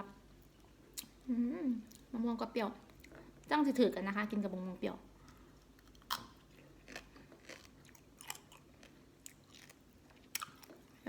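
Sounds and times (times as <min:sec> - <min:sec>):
chewing crunchy food: 0:05.2 - 0:11.0.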